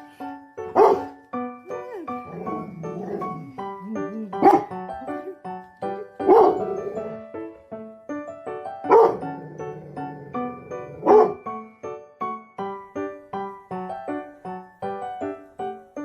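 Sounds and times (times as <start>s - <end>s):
light keyboard music: 0.0s - 16.0s
dog barking: 0.7s - 1.2s, 4.4s - 4.8s, 6.2s - 7.0s, 8.9s - 9.4s, 10.9s - 11.4s.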